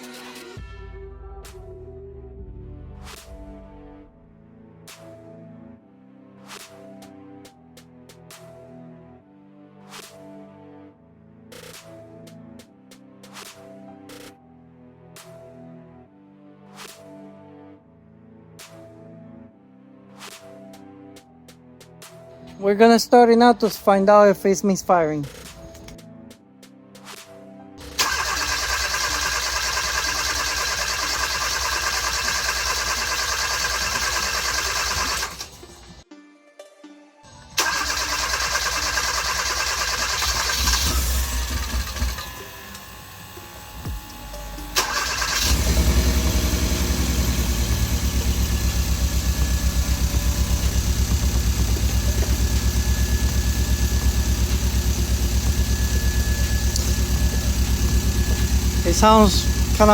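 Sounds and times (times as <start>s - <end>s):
car engine running steadily: 38.0s - 59.9s.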